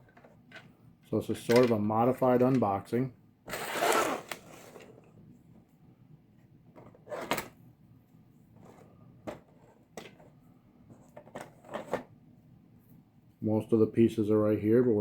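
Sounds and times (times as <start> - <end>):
plastic parts rustling and knocking: 0.0 - 2.8, 8.5 - 12.1.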